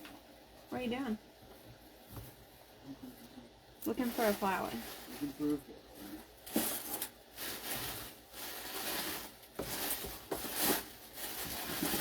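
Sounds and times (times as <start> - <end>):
rustling of dry craft materials: 3.2 - 12.0.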